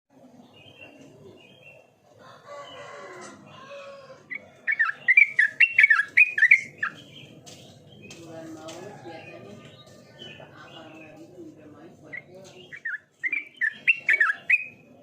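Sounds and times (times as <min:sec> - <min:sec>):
rooster crowing: 0:02.2 - 0:04.9
bird singing bubbly whistled notes: 0:12.7 - 0:14.8.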